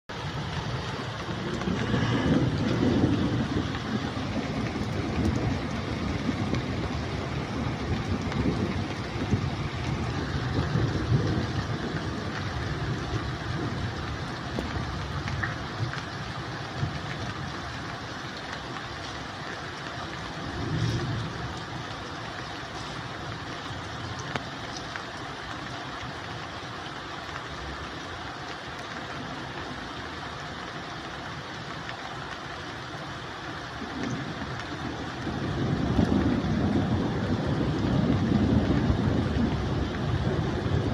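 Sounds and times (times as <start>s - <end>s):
steady rain falling: 0.1s - 40.9s
low rumble: 0.3s - 16.1s, 20.0s - 24.2s.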